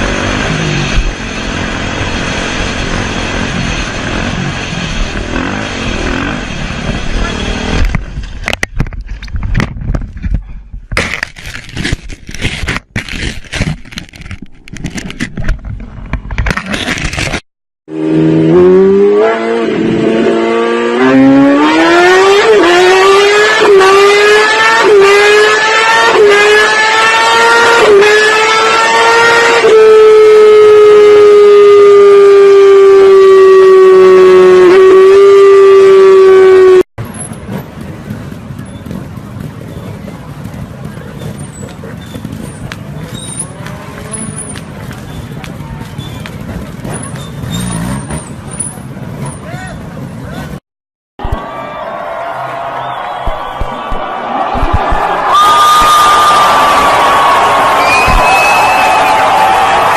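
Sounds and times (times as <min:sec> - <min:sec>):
motorcycle accelerating through gears: 0:00.0 - 0:08.0, 0:17.9 - 0:50.6
motorcycle engines at high revs: 0:00.0 - 0:08.0, 0:16.7 - 0:50.6
sharp knocks and scraping: 0:07.7 - 0:17.4.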